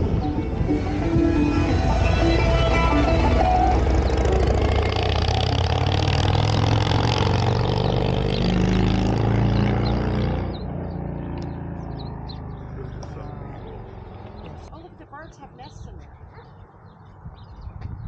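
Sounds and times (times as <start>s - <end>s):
vehicle engine running: 0.0s - 15.7s
birds chirping: 0.0s - 18.0s.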